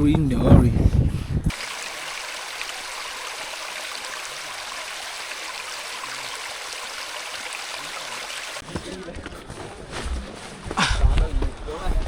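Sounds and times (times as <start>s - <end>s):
running water hissing: 1.5s - 8.6s.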